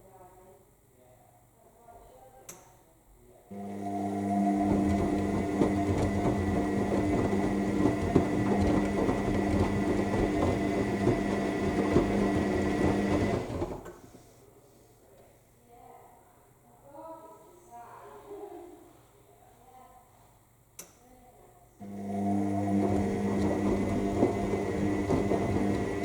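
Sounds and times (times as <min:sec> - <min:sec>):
washing machine motor hum: 0:03.5 - 0:13.9, 0:21.8 - 0:26.0
laundry tumbling and clattering: 0:04.6 - 0:13.9.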